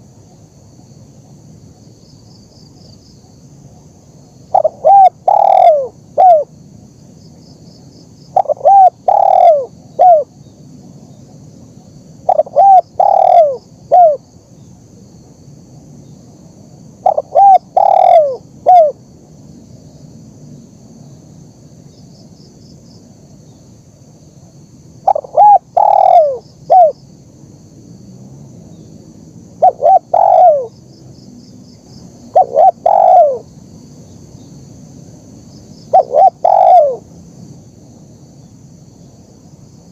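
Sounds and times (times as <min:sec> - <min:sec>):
dove cooing: 0:04.5 - 0:06.5, 0:08.3 - 0:10.4, 0:12.2 - 0:14.2, 0:17.0 - 0:19.0, 0:25.0 - 0:27.0, 0:29.6 - 0:30.8, 0:32.3 - 0:33.5, 0:35.9 - 0:37.1.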